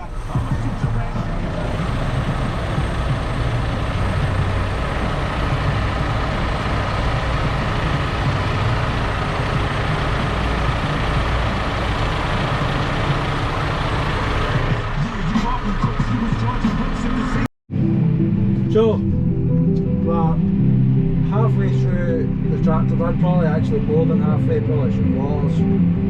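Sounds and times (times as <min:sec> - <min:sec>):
tractor diesel engine running: 0:00.0 - 0:17.5
transmission droning: 0:00.0 - 0:26.0.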